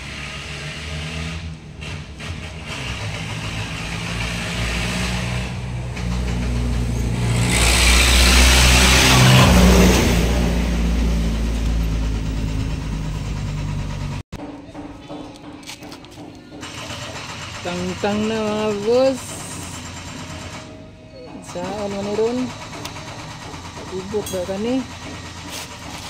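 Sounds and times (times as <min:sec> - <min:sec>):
engine revving: 0:00.0 - 0:14.2.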